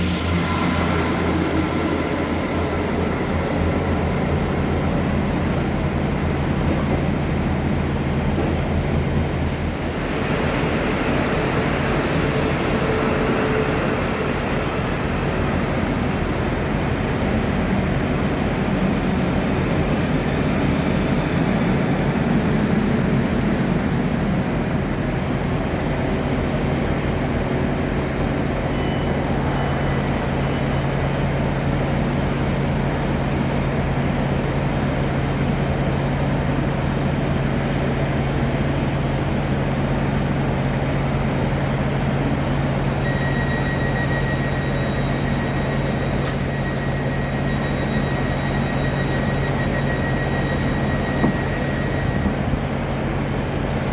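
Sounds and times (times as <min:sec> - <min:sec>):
thin high whine: 0:00.0 - 0:06.4
train rumbling: 0:00.0 - 0:53.9.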